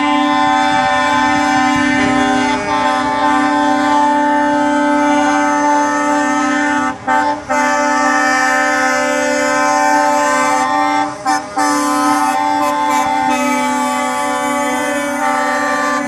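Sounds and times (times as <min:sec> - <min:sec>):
truck air horns blasting: 0:00.0 - 0:16.0.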